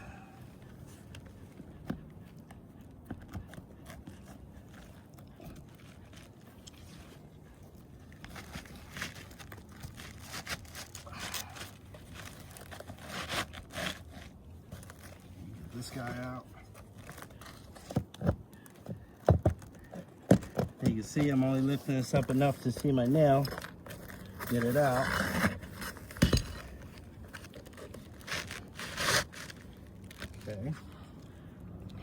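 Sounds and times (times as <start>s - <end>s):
roof shingles scraping and crunching: 8.2s - 30.8s.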